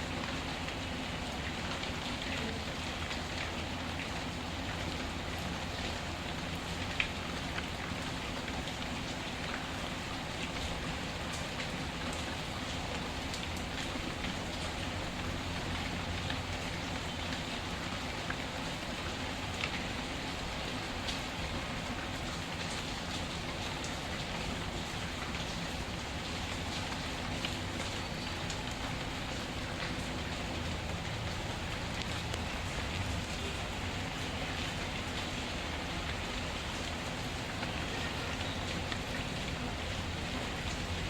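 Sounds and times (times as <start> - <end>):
steady rain: 0.0 - 41.0.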